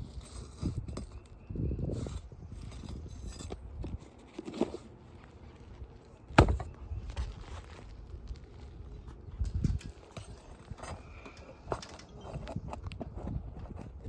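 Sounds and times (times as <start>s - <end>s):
hand tools scraping and knocking: 9.5s - 14.0s.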